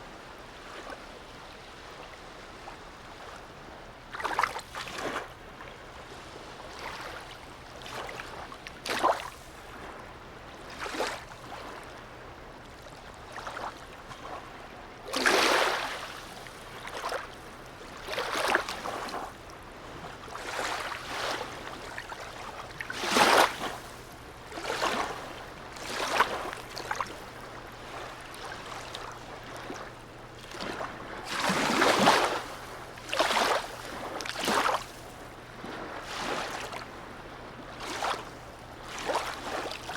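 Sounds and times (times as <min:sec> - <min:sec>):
waves slapping harbour edge: 0:00.0 - 0:39.9.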